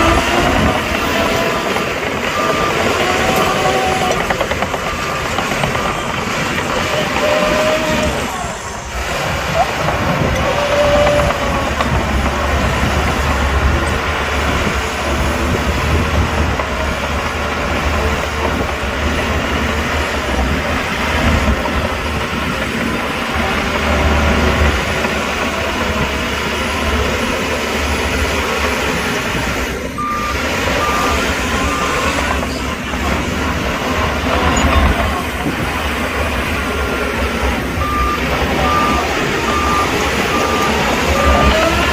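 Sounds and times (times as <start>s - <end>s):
reversing alarm beeps: 0.0s - 8.6s, 30.0s - 32.8s, 34.3s - 35.2s, 37.8s - 41.9s
diesel machinery engine rumble: 0.0s - 41.9s.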